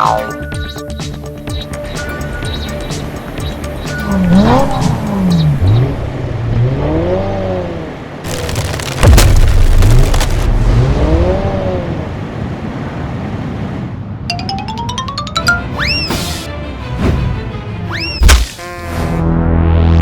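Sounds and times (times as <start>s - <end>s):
cartoon engine pitch glides: 14.3s - 16.4s.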